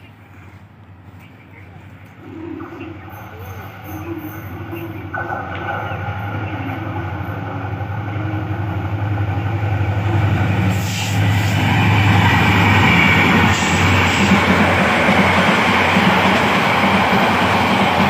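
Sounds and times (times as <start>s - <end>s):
locomotive engine drone: 0.2s - 18.0s
rush of train wheels: 8.8s - 18.0s.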